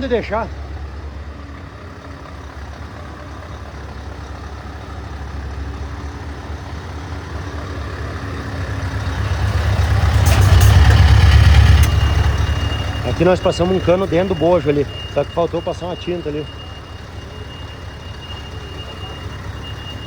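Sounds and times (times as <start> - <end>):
truck engine deep rumble: 0.0 - 20.0.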